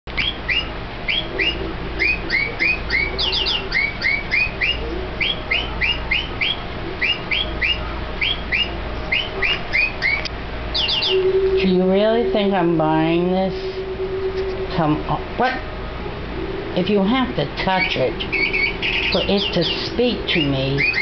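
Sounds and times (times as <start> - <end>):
toy bird chirping electronically: 0.2 - 11.8, 17.6 - 21.0.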